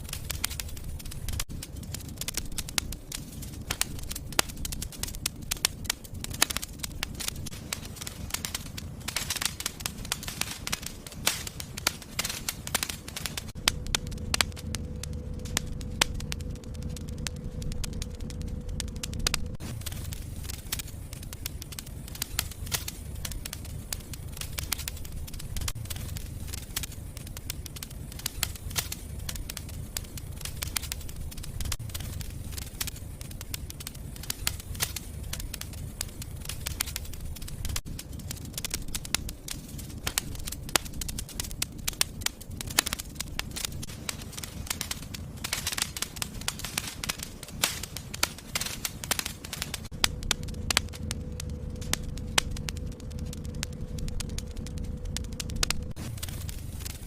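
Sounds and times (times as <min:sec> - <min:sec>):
low rumble of flames: 0:00.0 - 0:57.0
wood fire crackling: 0:00.0 - 0:57.0.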